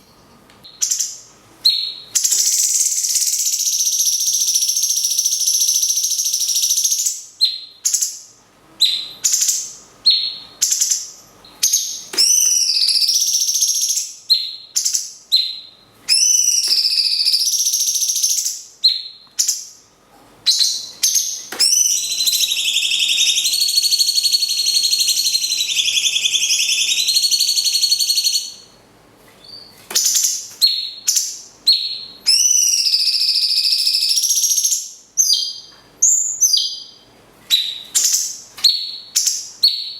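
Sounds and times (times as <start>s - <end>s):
bulbul high whistled notes: 21.6s - 28.5s.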